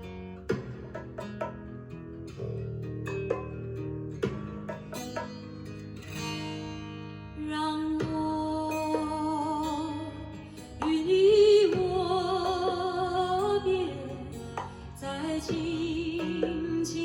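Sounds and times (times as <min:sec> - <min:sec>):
guitar accompaniment: 0:00.0 - 0:17.0
woman singing with vibrato: 0:07.4 - 0:17.0.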